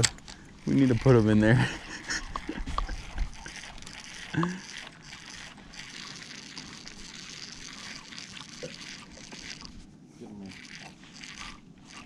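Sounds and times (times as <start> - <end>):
wind and water noise: 0.0 - 12.0.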